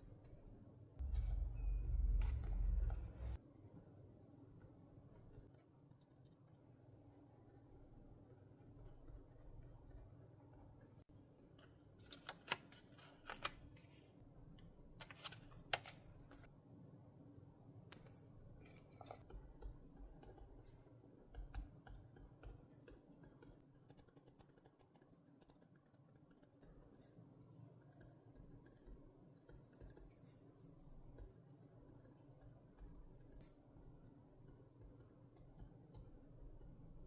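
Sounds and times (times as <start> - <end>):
paper and stationery handling: 11.5 - 14.1, 15.0 - 16.5, 18.0 - 20.8.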